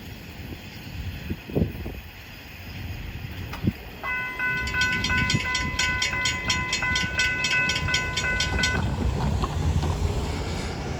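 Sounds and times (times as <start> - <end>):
freight train rumble: 0.0 - 10.9
crossing bell ringing: 4.0 - 9.2.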